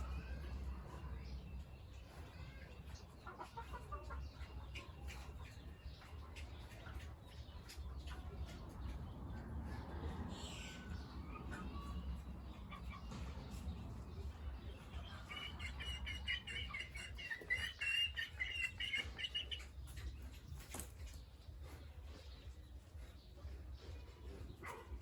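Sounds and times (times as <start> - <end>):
farmyard animal calls and clucks: 0.0 - 25.0
low rumble: 7.7 - 16.7.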